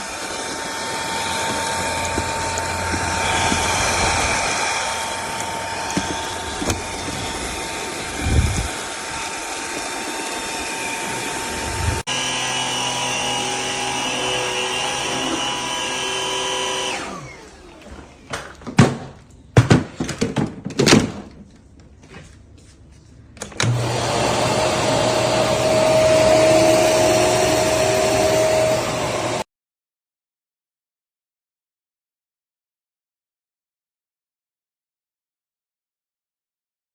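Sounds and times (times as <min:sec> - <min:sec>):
stick vacuum running: 0:00.0 - 0:18.2, 0:23.6 - 0:29.4.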